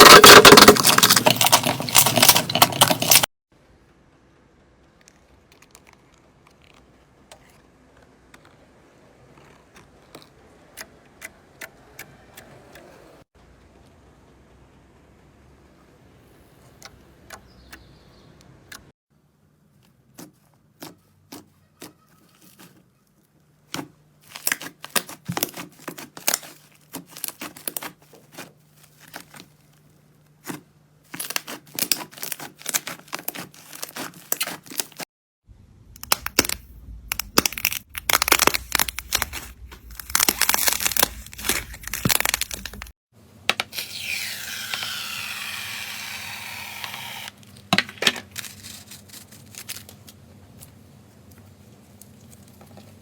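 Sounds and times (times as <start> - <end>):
slime crackling and popping: 31.1 - 35.0, 36.0 - 42.9.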